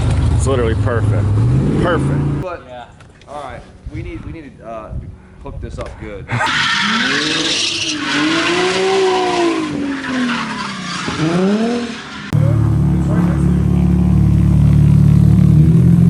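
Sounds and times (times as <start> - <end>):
car engine revving: 0.0 - 2.4, 6.4 - 16.0
tyres squealing: 6.4 - 12.4
loud low drone: 12.3 - 16.0.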